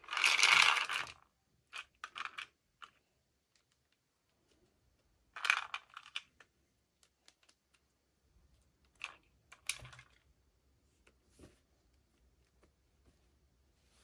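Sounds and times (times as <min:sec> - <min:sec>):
plastic pieces clicking and rattling: 0:05.3 - 0:07.9.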